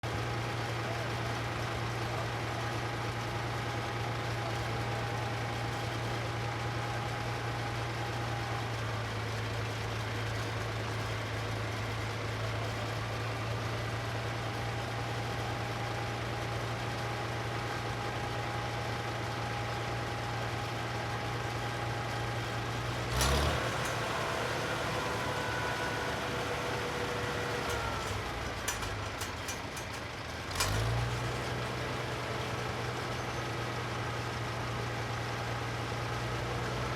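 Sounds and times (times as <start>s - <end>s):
tractor engine running: 0.1s - 36.9s
engine bursts: 20.1s - 33.4s.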